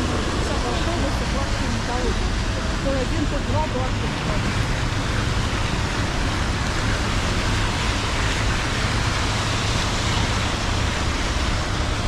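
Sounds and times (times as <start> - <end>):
rain on wet streets: 0.0 - 12.0
traffic on wet streets: 0.0 - 12.0.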